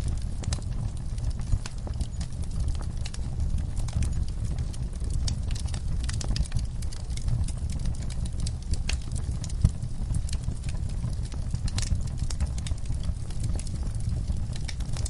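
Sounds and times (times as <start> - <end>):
low steady rumble: 0.0 - 15.0
wood fire crackling and popping: 0.0 - 15.0.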